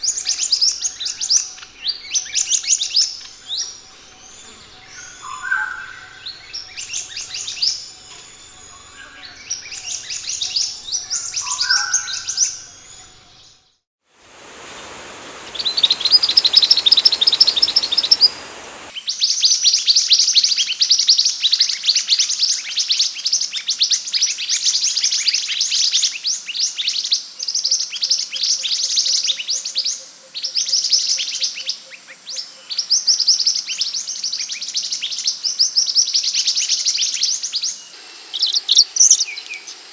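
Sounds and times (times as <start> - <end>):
background hiss: 0.0 - 13.4, 14.1 - 19.9, 28.7 - 39.9
bird twittering chirps: 0.0 - 13.4, 14.3 - 18.9.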